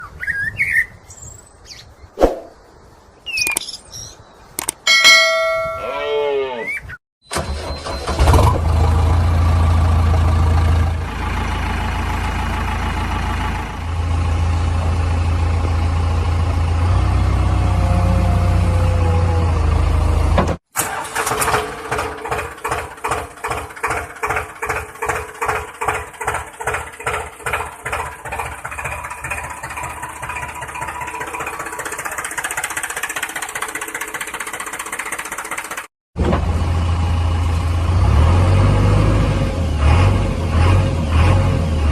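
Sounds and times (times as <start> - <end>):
engine chugging: 7.3 - 37.9
engine humming: 7.3 - 41.9.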